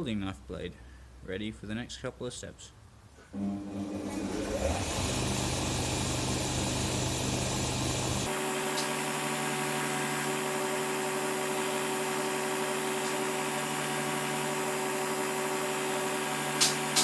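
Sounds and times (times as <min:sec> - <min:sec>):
machine hum with hiss: 0:03.6 - 0:17.0.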